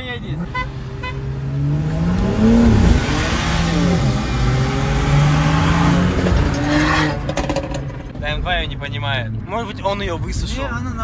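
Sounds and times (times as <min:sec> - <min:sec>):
car engine accelerating hard: 0:00.4 - 0:08.2.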